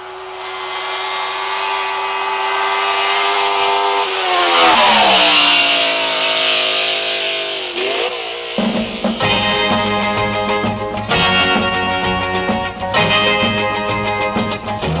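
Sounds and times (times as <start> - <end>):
car driving past: 0.0 - 9.9.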